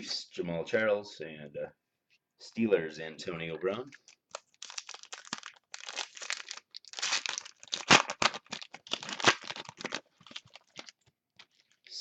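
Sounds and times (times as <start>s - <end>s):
foil wrapper tearing and crinkling: 4.3s - 11.0s.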